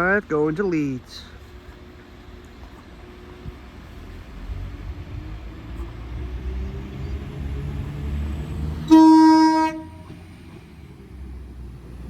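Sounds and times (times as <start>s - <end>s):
diesel train rumbling: 0.0s - 12.0s
train horn blast: 8.8s - 10.2s.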